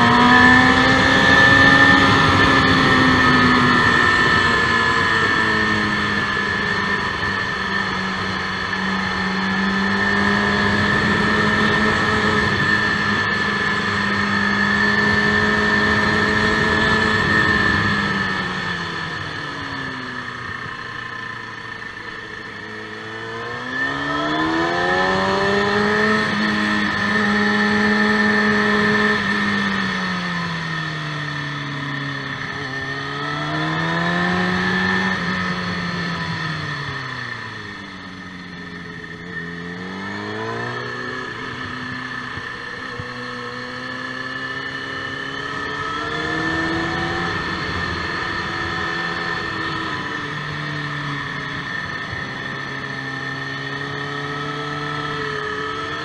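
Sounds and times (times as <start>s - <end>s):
motorcycle engine revving: 0.0s - 56.0s
steady high whine: 0.0s - 56.0s.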